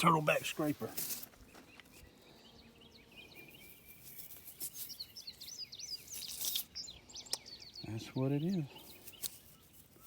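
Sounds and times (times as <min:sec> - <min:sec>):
songbird chirping: 0:00.0 - 0:10.0
brief rustles: 0:06.0 - 0:06.7.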